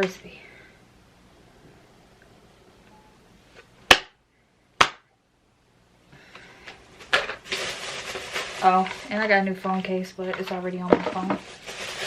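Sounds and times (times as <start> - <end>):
small items rustling and clattering: 6.6 - 12.0.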